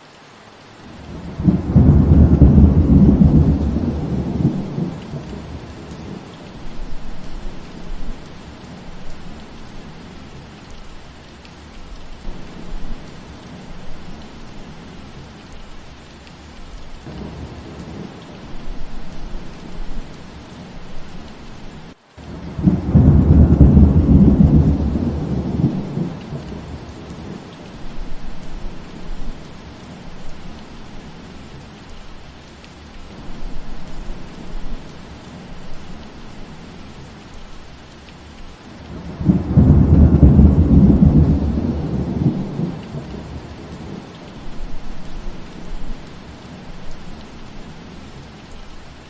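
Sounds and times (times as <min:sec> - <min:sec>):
steady rain: 0:00.0 - 0:49.0
thunder rumble: 0:00.9 - 0:10.3, 0:16.9 - 0:31.4, 0:38.7 - 0:48.0.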